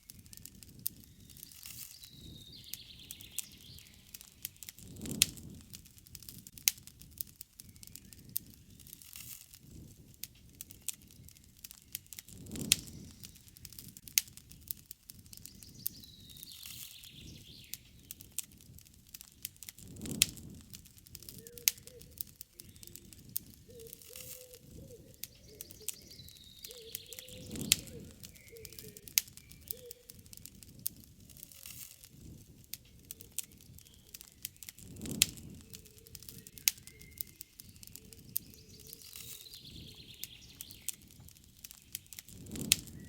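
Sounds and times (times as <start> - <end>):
burning wood snapping: 0.0 - 43.0
campfire crackling: 0.0 - 43.0
low wavering bird call: 21.3 - 30.2, 35.7 - 40.9
high chirping bird call: 21.4 - 30.2, 35.8 - 41.0.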